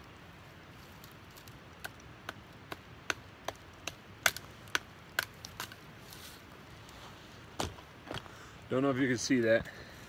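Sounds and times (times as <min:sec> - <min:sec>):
knife chopping branch: 0:01.8 - 0:05.8.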